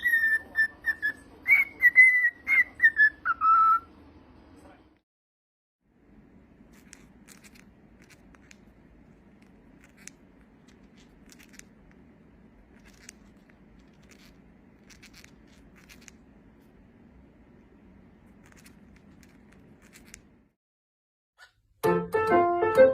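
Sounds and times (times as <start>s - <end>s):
faint clicks and scratches: 6.6s - 16.8s, 18.1s - 20.4s.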